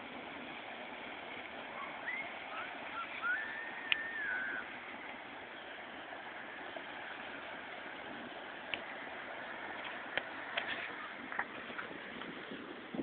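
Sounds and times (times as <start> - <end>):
steady outdoor hiss: 0.0 - 13.0
whistled bird notes: 1.8 - 4.7.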